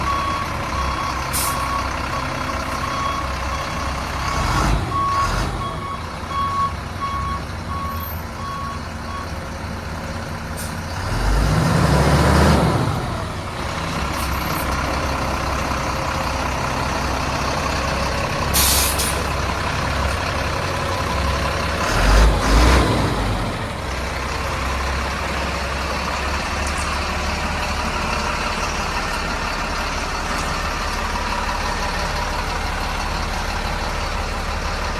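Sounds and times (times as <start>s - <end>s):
diesel truck engine running: 0.0s - 34.9s
air hiss: 18.6s - 19.3s.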